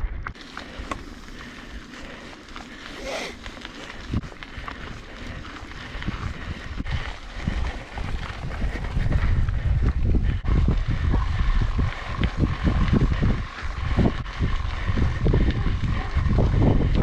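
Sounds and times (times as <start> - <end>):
wind rumbling on microphone: 0.0 - 17.0
bike clicking and rattling: 0.2 - 17.0
bike tyres on wet dirt: 0.3 - 17.0.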